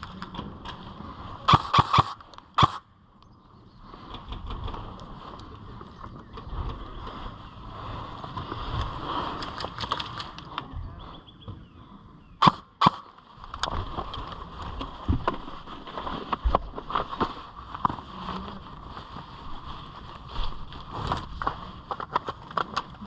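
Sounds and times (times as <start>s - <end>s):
sharp snaps: 1.5s - 2.8s, 12.4s - 13.2s.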